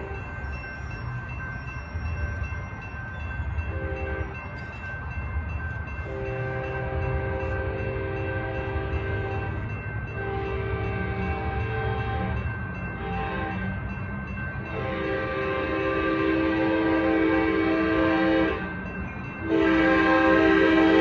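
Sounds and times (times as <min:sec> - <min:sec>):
crossing bell ringing: 0:00.0 - 0:21.0
train rumbling: 0:00.0 - 0:21.0
train horn blasts: 0:03.7 - 0:04.4, 0:06.1 - 0:09.5, 0:10.2 - 0:12.4, 0:13.0 - 0:13.8, 0:14.7 - 0:18.8, 0:19.4 - 0:21.0.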